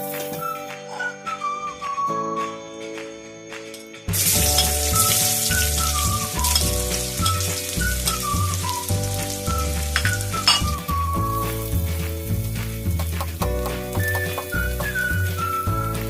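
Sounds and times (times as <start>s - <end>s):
background music: 0.0s - 16.0s
food sizzling in a pan: 4.1s - 16.0s.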